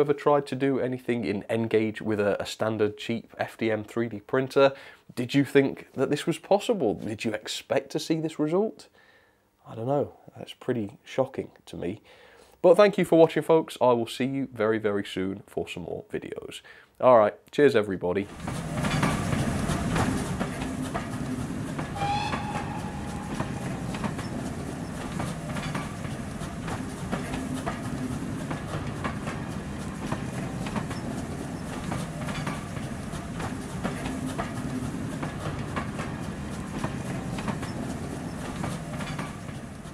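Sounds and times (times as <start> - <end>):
train rumbling past: 18.3 - 39.9
wheels clicking over rail joints: 18.3 - 39.9
brief wheel squeal: 21.9 - 26.0.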